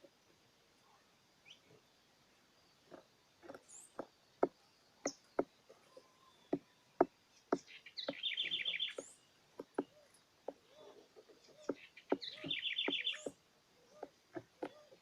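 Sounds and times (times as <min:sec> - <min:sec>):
small bird trilling: 0:10.6 - 0:13.4.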